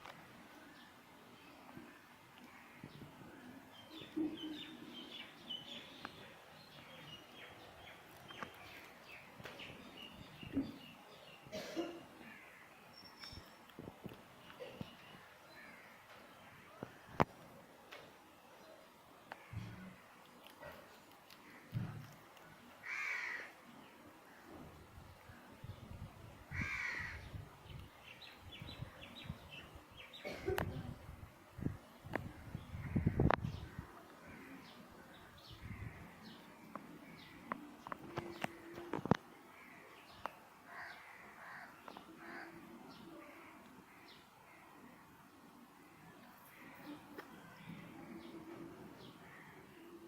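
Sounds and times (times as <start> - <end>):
harsh caw-like bird calls: 22.8 - 23.6, 26.5 - 27.3, 40.7 - 42.6.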